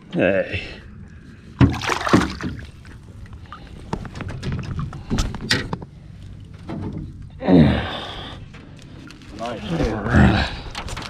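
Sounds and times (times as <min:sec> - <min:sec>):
knocks and clatters in a boat: 0:01.6 - 0:07.4, 0:08.4 - 0:11.0.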